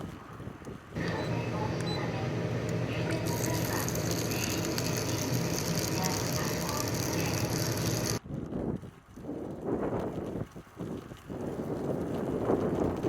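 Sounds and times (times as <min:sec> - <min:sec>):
wind and road rumble: 0:00.0 - 0:13.0
bicycle freewheel ticking: 0:03.0 - 0:08.2.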